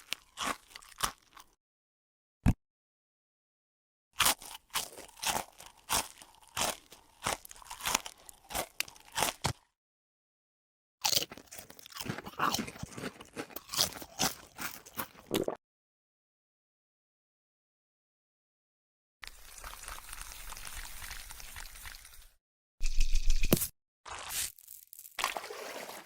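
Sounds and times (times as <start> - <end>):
crunchy chewing: 0.0 - 1.6, 4.2 - 9.7, 11.0 - 15.3.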